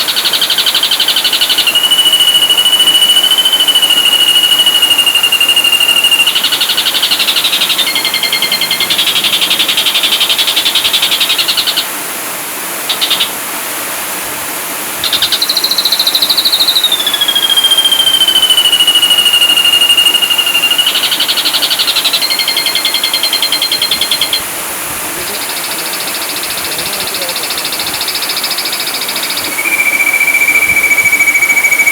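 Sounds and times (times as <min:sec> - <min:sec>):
bird whistles and buzzy trills: 0:00.0 - 0:11.9, 0:12.8 - 0:13.4, 0:15.0 - 0:24.5, 0:25.2 - 0:31.9.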